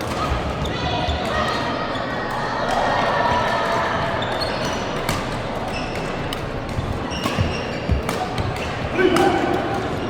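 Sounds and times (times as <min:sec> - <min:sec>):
shoes squeaking on court floor: 0:04.1 - 0:10.0
rackets striking shuttlecock: 0:05.0 - 0:10.0.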